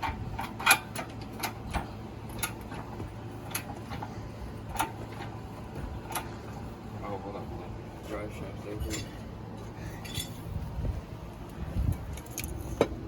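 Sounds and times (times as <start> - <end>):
metallic clicks and knocks: 0.0 - 4.1
steady low hum: 0.0 - 13.0.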